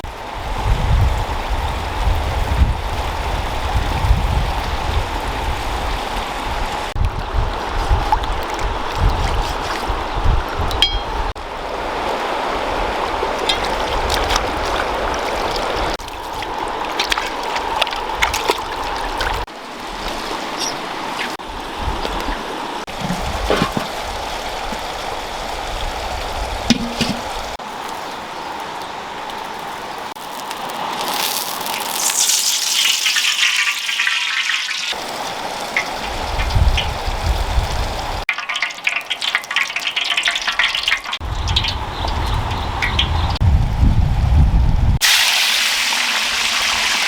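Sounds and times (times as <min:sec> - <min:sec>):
water trickling and splashing: 0:00.0 - 0:43.5, 0:45.0 - 0:47.0
water pouring: 0:12.1 - 0:43.0.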